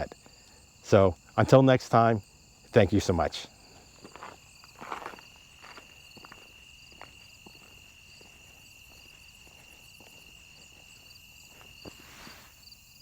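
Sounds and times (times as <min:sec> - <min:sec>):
insect pulsed chirp: 0:00.0 - 0:13.0.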